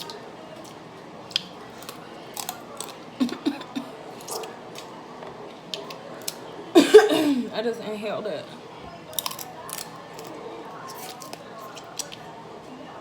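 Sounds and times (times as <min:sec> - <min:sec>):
wet chewing and lip smacks: 0:00.0 - 0:03.4.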